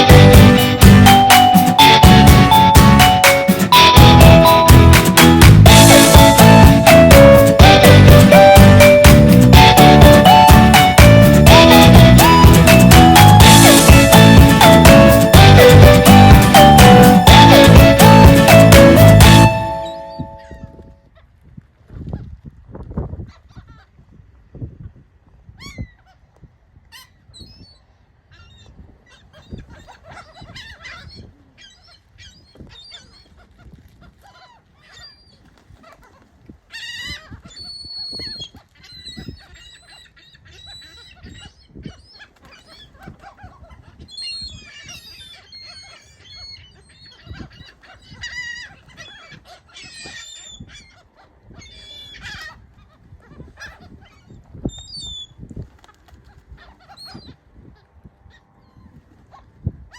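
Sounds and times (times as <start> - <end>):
flock of birds calling: 28.4 - 57.4.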